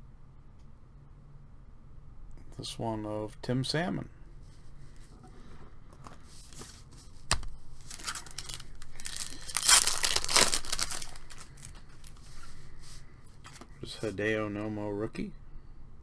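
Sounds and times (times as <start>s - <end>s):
foil wrapper crinkling: 6.4s - 13.7s.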